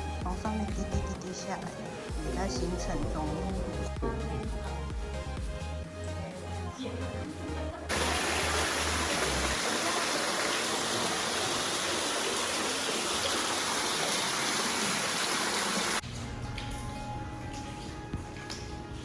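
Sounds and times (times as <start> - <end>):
background music with low beat: 0.0 - 7.9, 16.1 - 19.0
water rushing: 7.9 - 16.0.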